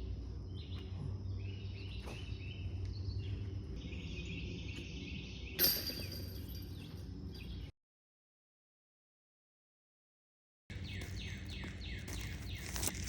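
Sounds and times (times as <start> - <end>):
birds or insects chirping: 0.0 - 7.7, 10.7 - 13.0
steady low rumble: 0.0 - 7.7.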